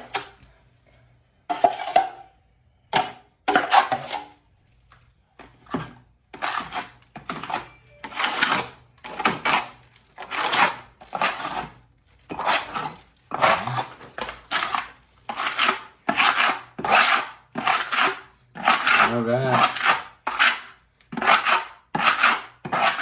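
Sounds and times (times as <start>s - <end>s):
knife scraping compound on wall: 0.0s - 0.5s, 1.4s - 4.5s, 5.4s - 23.0s.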